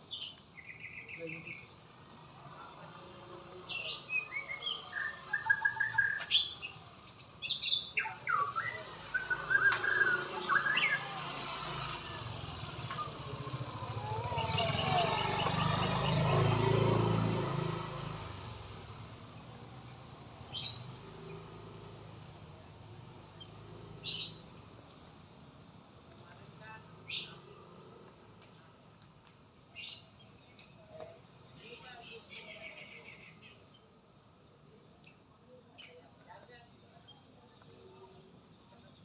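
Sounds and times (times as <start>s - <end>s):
sharp bird calls: 3.4s - 19.7s
bird singing whistled phrases: 7.5s - 11.1s.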